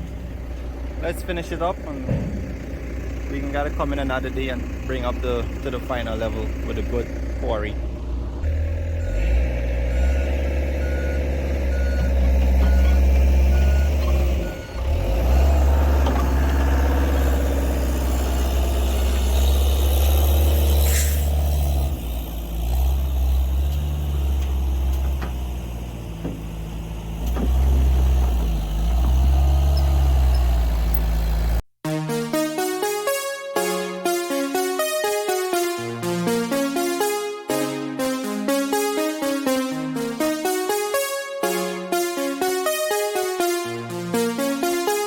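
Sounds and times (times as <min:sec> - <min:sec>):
diesel engine working: 0:00.0 - 0:31.6
backup alarm beeping: 0:09.0 - 0:15.9.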